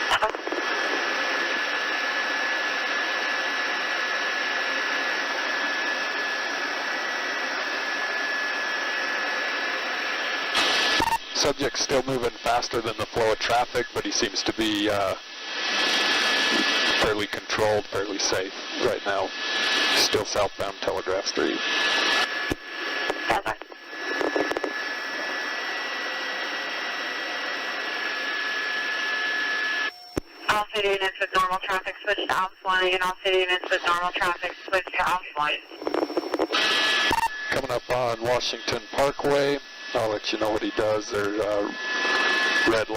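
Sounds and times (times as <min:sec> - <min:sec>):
radio hiss: 0:00.0 - 0:01.8, 0:10.5 - 0:25.4, 0:29.6 - 0:42.9
helicopter turbine and rotor noise: 0:00.0 - 0:42.9
radio clicks: 0:22.5 - 0:24.8, 0:33.4 - 0:37.3.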